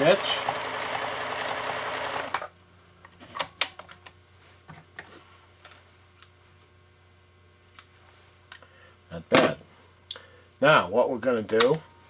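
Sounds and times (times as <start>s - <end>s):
sewing machine running: 0.0s - 2.5s.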